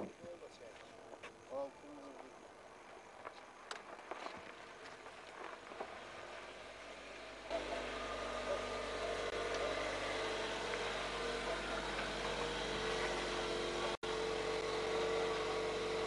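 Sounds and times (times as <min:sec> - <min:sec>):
car engine running: 0:05.7 - 0:16.0.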